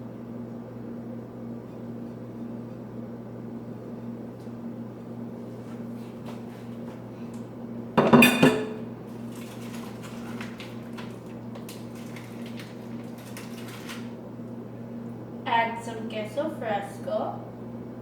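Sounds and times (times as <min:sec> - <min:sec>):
steady low hum: 0:00.0 - 0:09.4, 0:14.1 - 0:18.0
dishes and utensils clattering: 0:08.0 - 0:08.8.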